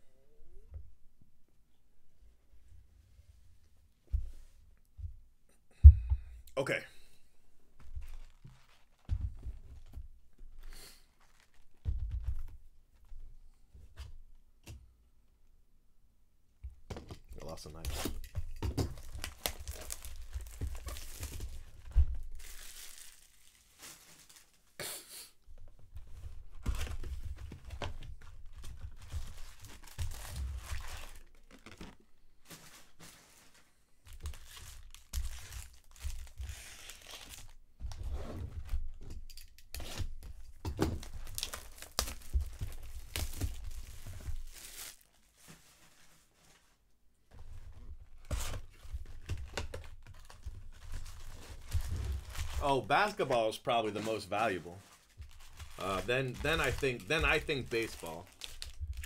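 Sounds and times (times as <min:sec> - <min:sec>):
wrappers torn and crinkled: 0:19.0 - 0:24.8, 0:28.7 - 0:32.0, 0:34.1 - 0:37.6, 0:41.0 - 0:45.5, 0:49.4 - 0:53.2, 0:53.9 - 0:59.0.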